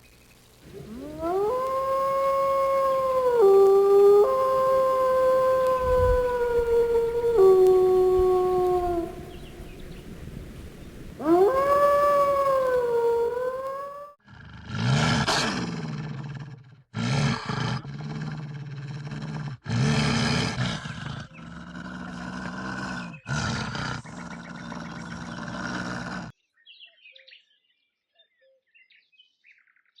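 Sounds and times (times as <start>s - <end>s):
wolf howling: 0.6s - 14.2s
low growling: 0.6s - 26.3s.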